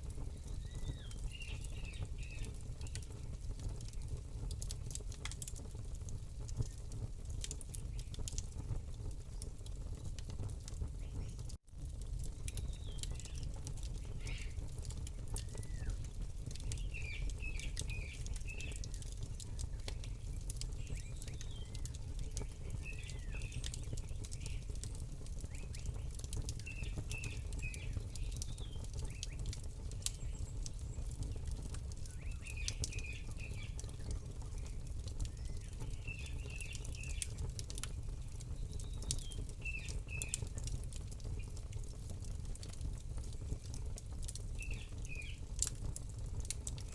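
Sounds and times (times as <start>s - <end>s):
small birds chirping: 0.0s - 4.2s, 7.6s - 8.4s, 10.8s - 11.5s, 12.3s - 41.7s, 43.2s - 45.7s
campfire crackling and popping: 0.0s - 46.9s.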